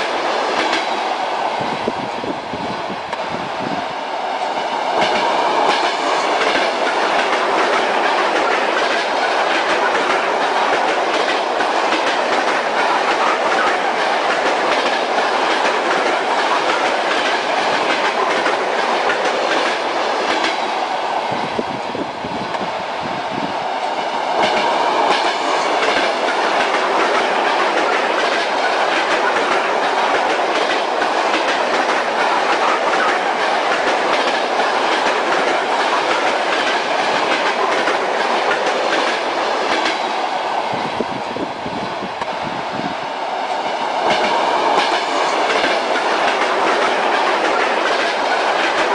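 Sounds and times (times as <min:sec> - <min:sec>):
railway carriage rumble: 0:00.0 - 0:48.9
train wheels clattering over rail joints: 0:04.9 - 0:20.8, 0:24.3 - 0:40.3, 0:43.5 - 0:48.9.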